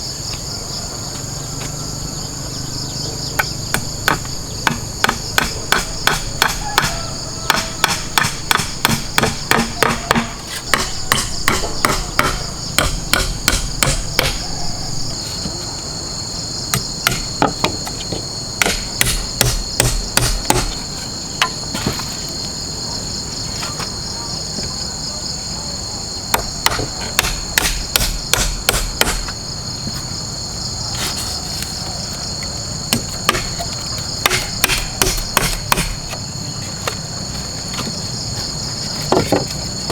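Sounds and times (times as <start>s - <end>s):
insects droning: 0.0s - 39.9s
hammer blows: 3.4s - 15.6s, 32.9s - 36.2s.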